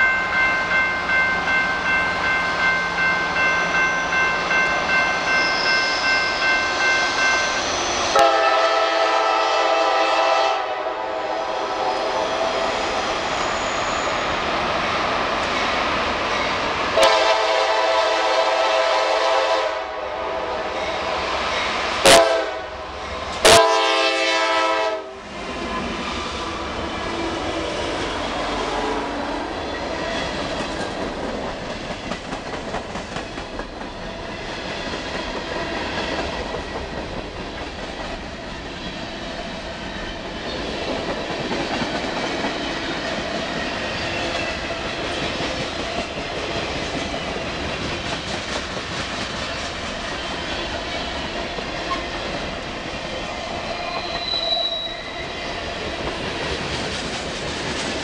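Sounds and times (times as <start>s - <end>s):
locomotive air horn blasts: 8.1s - 12.5s, 17.0s - 20.8s, 22.0s - 22.8s, 23.4s - 25.2s
train wheels rumbling on rails: 20.2s - 58.0s.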